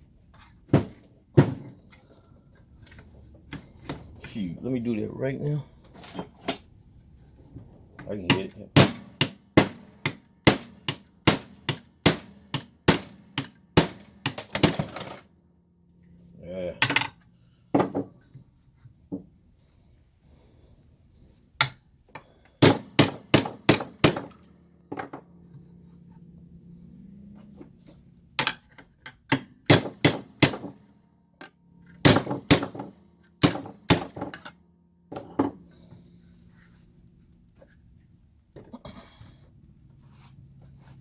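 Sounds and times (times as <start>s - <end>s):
hammer striking metal chassis: 8.2s - 15.2s, 28.4s - 35.4s.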